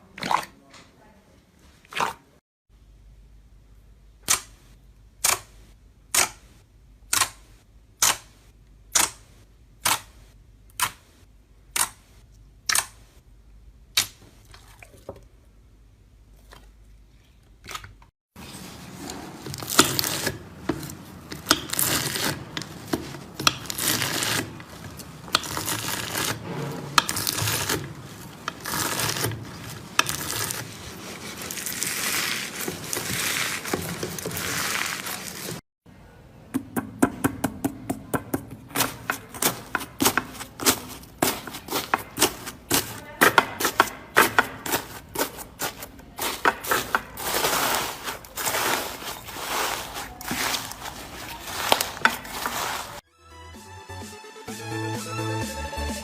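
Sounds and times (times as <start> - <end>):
slime squishing and crackling: 19.4 - 35.6, 38.7 - 53.0.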